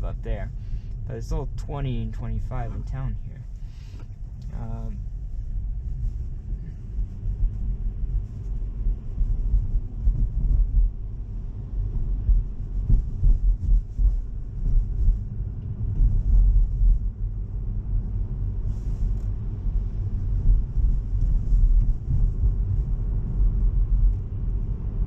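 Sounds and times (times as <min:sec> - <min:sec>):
road rumble inside car: 0:00.0 - 0:25.0.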